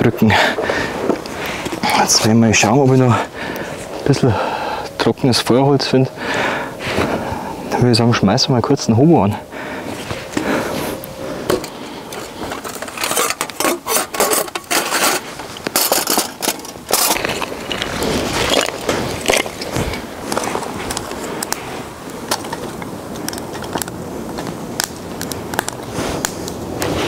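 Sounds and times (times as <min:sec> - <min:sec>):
dry twigs snapping: 0:09.9 - 0:26.9
firewood knocking and scraping: 0:11.4 - 0:27.0.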